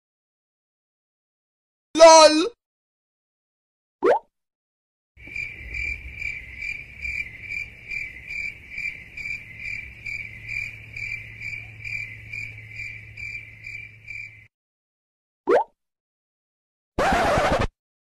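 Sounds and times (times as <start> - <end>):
crickets chirping: 5.2 - 14.5.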